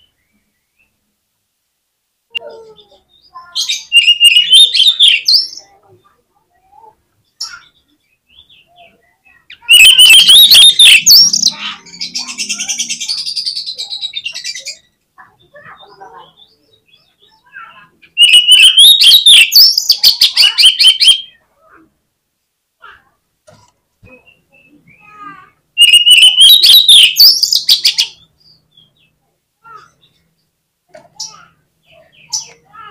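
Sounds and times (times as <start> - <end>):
bird singing loud whistles: 3.8 - 5.5, 9.7 - 11.8, 18.2 - 21.4, 25.8 - 28.1.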